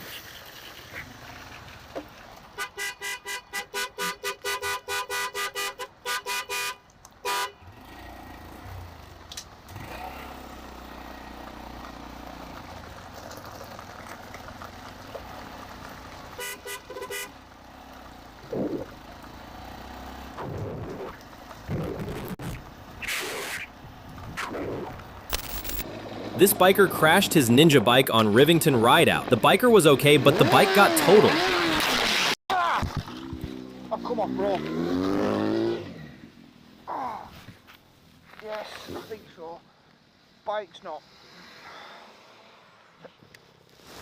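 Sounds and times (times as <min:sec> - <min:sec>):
engine and traffic rumble: 0:00.0 - 0:44.0
vehicle horn tooting: 0:02.6 - 0:07.6, 0:16.4 - 0:17.4.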